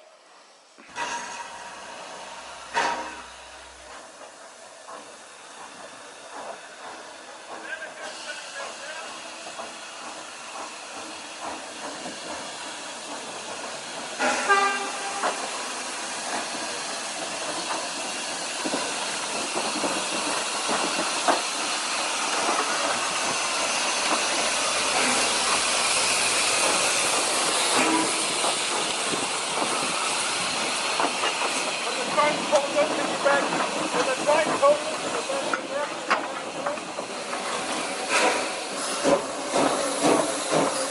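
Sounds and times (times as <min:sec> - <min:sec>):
steam train hissing: 0:00.0 - 0:40.9
wheels clicking on rails: 0:02.7 - 0:40.9
train whistle toot: 0:14.3 - 0:15.4.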